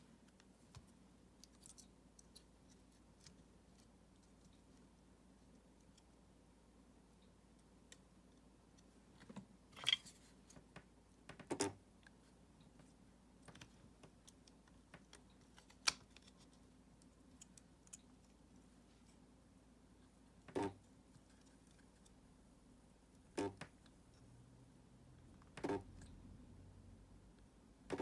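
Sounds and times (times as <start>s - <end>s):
light clicks of small parts: 0.2s - 6.2s, 7.2s - 11.4s, 12.0s - 19.2s.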